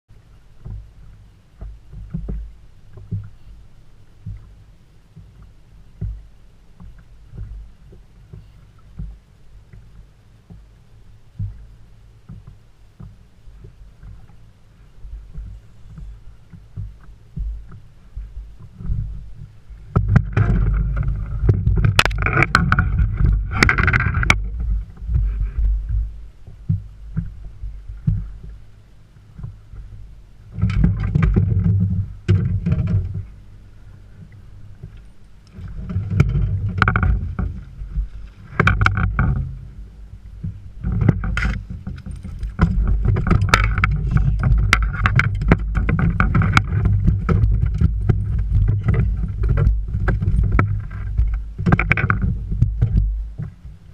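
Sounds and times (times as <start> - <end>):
low rumbling wind buffeting: 13.5 - 53.9.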